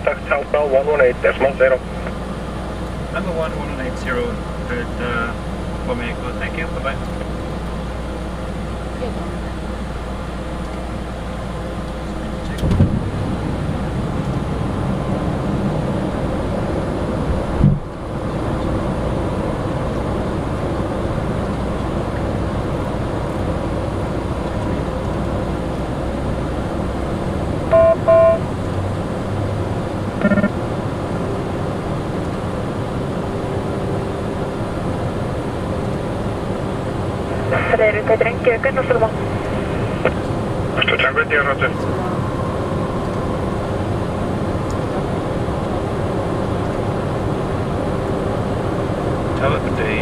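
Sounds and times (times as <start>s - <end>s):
cockpit airflow and engine rush: 0.0s - 50.0s
electronic beeps: 27.7s - 28.4s, 30.2s - 30.6s.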